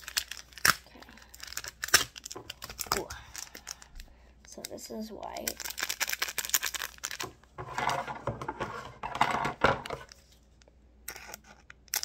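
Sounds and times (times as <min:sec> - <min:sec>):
plastic packet crinkling: 0:00.0 - 0:08.1, 0:11.1 - 0:12.0
scissors cutting plastic: 0:11.1 - 0:12.0.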